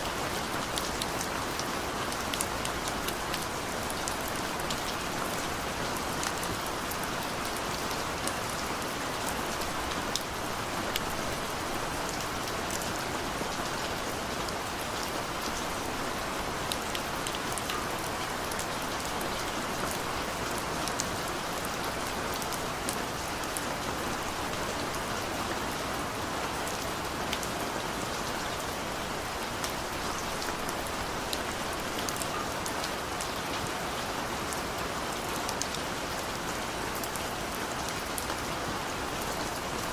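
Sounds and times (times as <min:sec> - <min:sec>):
raindrops ticking on a surface: 0:00.0 - 0:25.6
steady rainfall hiss: 0:00.0 - 0:39.9.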